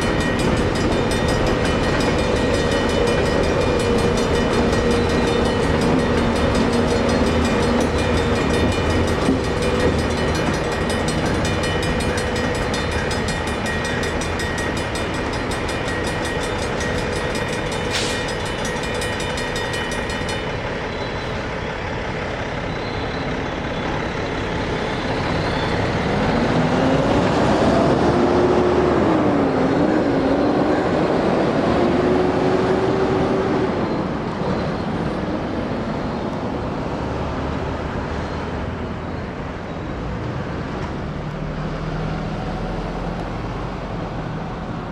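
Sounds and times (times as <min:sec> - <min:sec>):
crossing bell ringing rapidly: 0:00.0 - 0:27.8
freight train rumbling past: 0:00.0 - 0:44.9.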